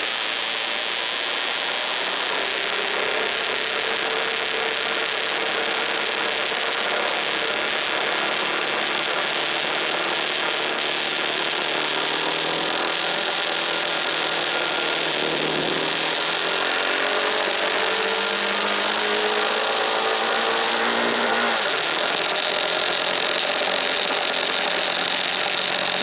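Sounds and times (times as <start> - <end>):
motorcycle engine accelerating: 2.7 - 26.0.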